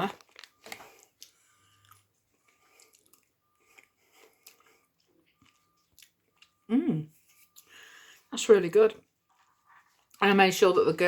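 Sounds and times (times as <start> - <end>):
chewing sandwich with crunches: 0.1 - 7.7.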